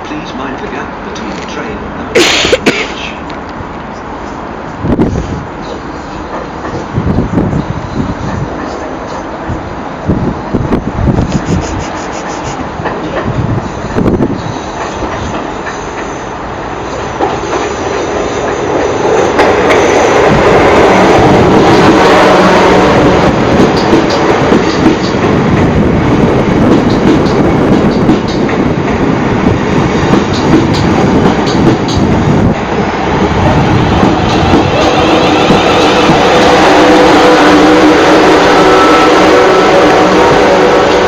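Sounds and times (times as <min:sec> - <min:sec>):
train rumbling: 0:00.0 - 0:41.0
wheels clicking over rail joints: 0:26.6 - 0:29.0.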